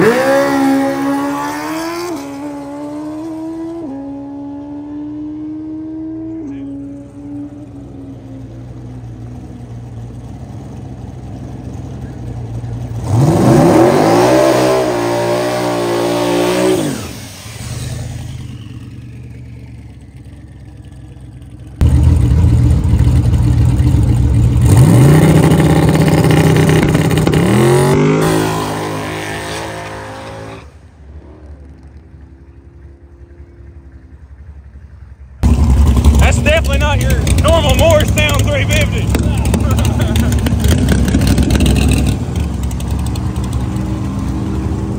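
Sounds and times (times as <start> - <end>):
race car engine at full throttle: 0.0 - 44.9
faint steady engine hum: 6.3 - 13.2, 30.7 - 41.4.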